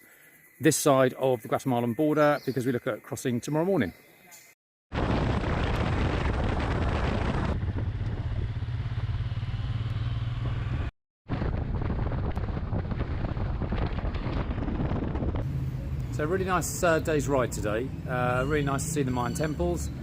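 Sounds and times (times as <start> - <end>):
wind and road noise: 4.9 - 20.0
motorcycle engine running: 7.1 - 10.9.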